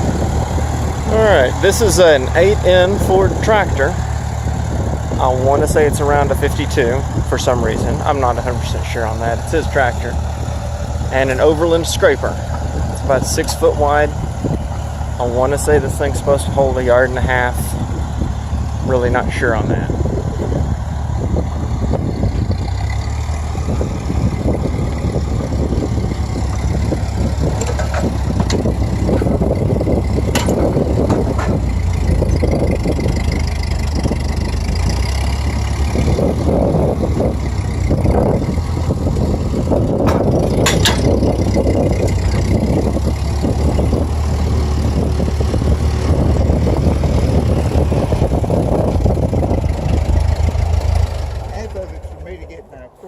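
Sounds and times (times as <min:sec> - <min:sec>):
tractor engine running: 0:00.0 - 0:53.0
sharp metallic clanks: 0:30.2 - 0:32.4, 0:40.0 - 0:42.5.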